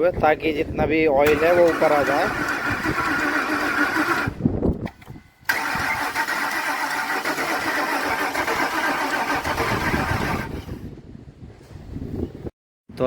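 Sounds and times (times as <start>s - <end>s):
engine cranking without starting: 1.2s - 10.9s.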